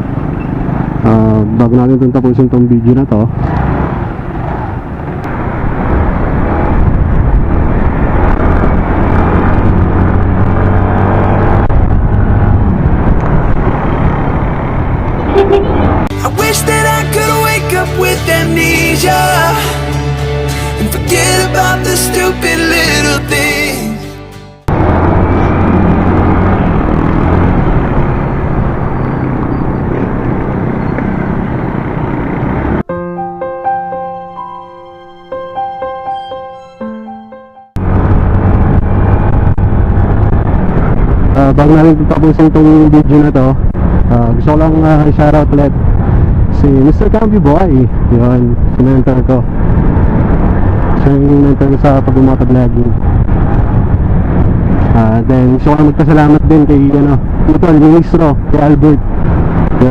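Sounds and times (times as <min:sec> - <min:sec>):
motorcycle engine humming: 0:00.0 - 0:41.4
wind buffeting microphone: 0:03.6 - 0:16.1, 0:37.8 - 0:59.9
piano music: 0:15.2 - 0:24.7, 0:32.8 - 0:37.8.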